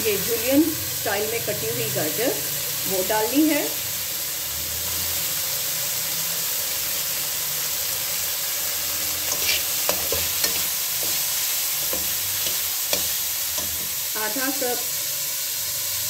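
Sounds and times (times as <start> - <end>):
food sizzling in hot oil: 0.0 - 16.0
metal spatula clicking on pan: 9.3 - 11.2.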